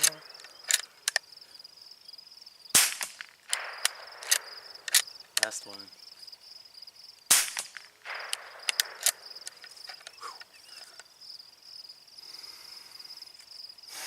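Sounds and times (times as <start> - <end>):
sharp clicks: 0.0 - 1.3, 2.8 - 5.8, 7.2 - 11.1
insects trilling: 0.0 - 14.0
rustle: 0.0 - 14.0.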